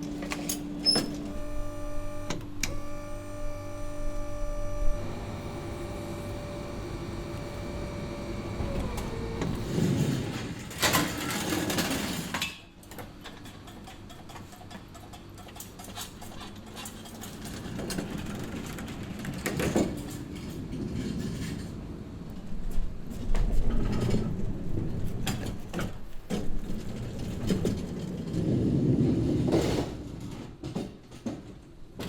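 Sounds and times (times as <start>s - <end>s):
motor hum: 0.0s - 10.3s
machinery clunks and clicks: 0.0s - 21.6s.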